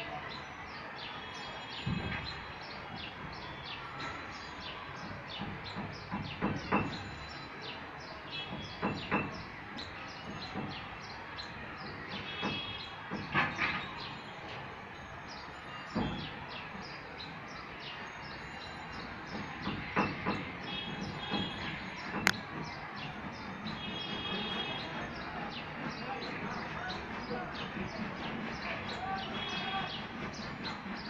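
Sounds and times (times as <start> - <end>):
dull knocks: 5.4 - 7.1, 8.5 - 9.5, 19.3 - 22.7.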